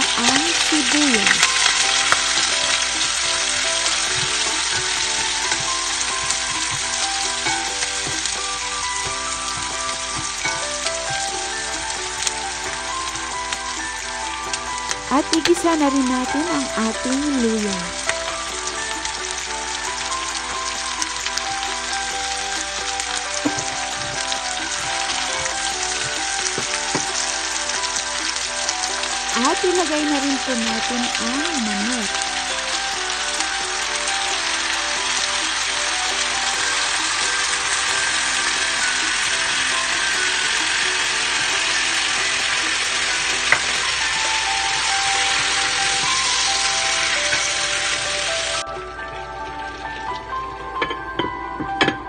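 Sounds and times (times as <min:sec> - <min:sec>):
background music: 0:00.0 - 0:52.0
onion sizzling in hot oil: 0:00.0 - 0:52.0
wooden spatula knocking pot: 0:03.8 - 0:11.5, 0:23.4 - 0:27.3.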